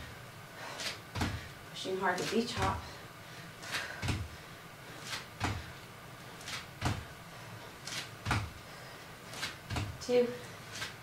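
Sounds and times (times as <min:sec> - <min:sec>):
foot landing thud on floor: 0:01.1 - 0:01.5, 0:03.7 - 0:04.4, 0:05.1 - 0:05.7, 0:06.5 - 0:07.1, 0:07.9 - 0:08.6, 0:09.4 - 0:10.0.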